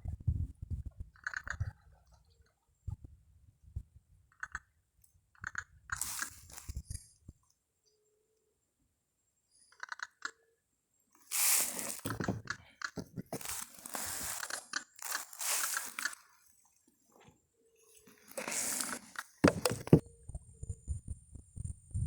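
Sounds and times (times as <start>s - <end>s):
close crunching and rustling: 6.0s - 7.0s, 11.2s - 16.4s, 18.0s - 20.0s.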